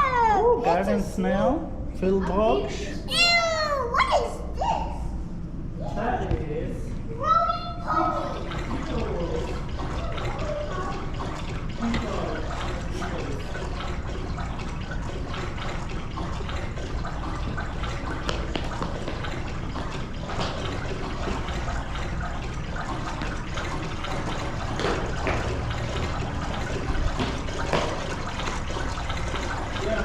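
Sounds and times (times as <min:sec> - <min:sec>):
running water splashing: 0:08.1 - 0:30.0.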